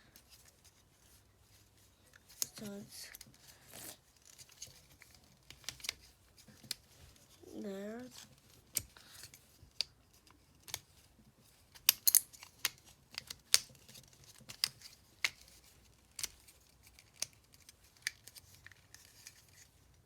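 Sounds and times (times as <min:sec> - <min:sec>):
plastic puzzle clicking: 0:04.2 - 0:06.8, 0:11.7 - 0:19.6.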